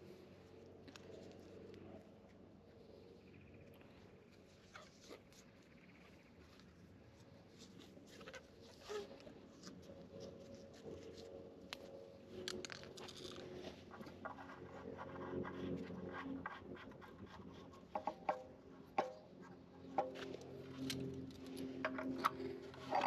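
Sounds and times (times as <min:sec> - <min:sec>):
clicks of objects being handled: 0:09.6 - 0:14.5.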